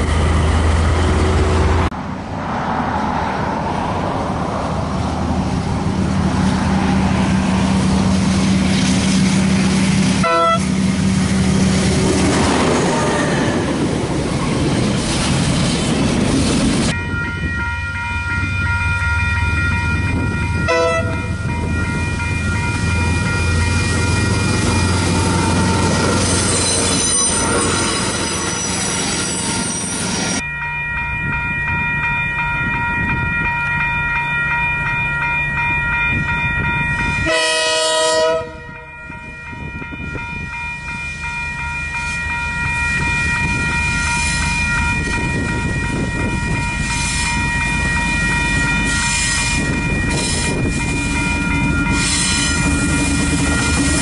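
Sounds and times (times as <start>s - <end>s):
train wagons rolling on rails: 0.0s - 54.0s
locomotive horn blasts: 10.2s - 10.9s, 20.6s - 21.4s, 37.2s - 38.9s.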